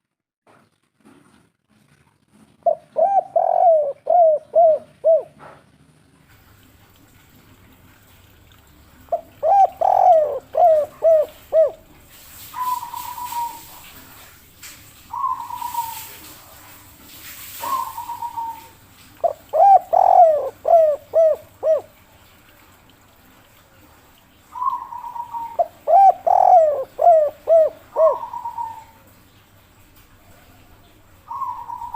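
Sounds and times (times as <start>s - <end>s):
dove cooing: 2.6s - 5.6s, 9.1s - 14.0s, 15.1s - 16.4s, 17.6s - 22.0s, 24.5s - 29.1s, 30.5s - 31.9s.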